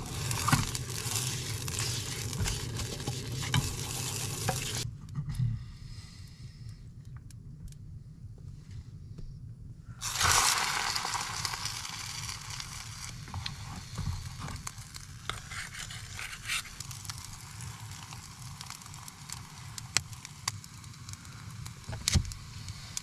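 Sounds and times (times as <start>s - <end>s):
food sizzling in a hot pan: 0.0s - 4.8s, 10.0s - 21.8s.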